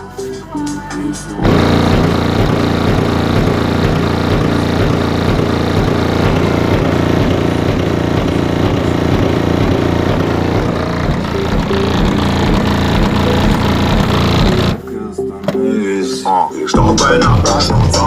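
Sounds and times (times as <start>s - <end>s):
deep bass music from subwoofers: 0.0s - 18.0s
distorted rattle: 1.4s - 14.8s.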